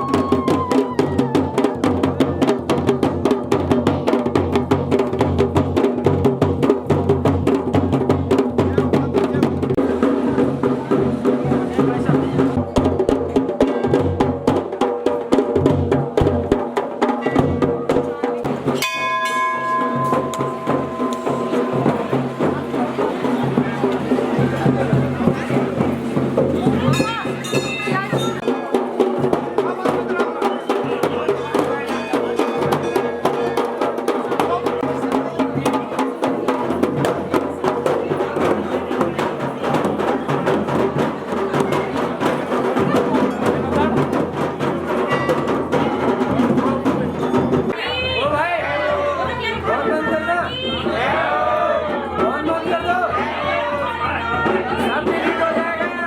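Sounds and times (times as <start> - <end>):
fast drumming: 0.0 - 56.0
pitched music: 18.4 - 29.4
bell ringing: 18.8 - 23.9, 26.9 - 28.8.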